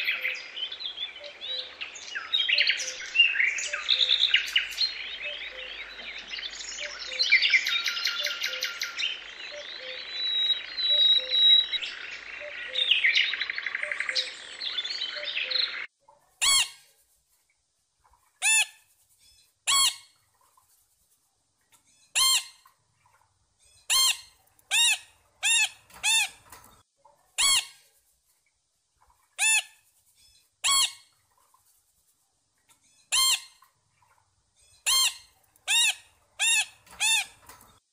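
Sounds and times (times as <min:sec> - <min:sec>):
sparrows chirping: 0:00.0 - 0:15.9
parrot harsh screeches: 0:16.4 - 0:16.9, 0:18.4 - 0:18.8, 0:19.7 - 0:20.1, 0:22.1 - 0:22.6, 0:23.9 - 0:26.5, 0:27.4 - 0:27.8, 0:29.4 - 0:29.8, 0:30.6 - 0:31.0, 0:33.1 - 0:33.6, 0:34.9 - 0:37.4.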